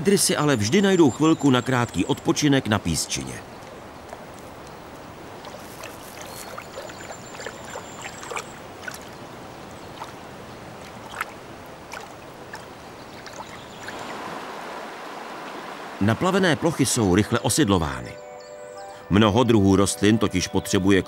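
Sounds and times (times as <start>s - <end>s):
river water trickling: 0.0s - 18.0s
small splashes in water: 5.4s - 16.0s.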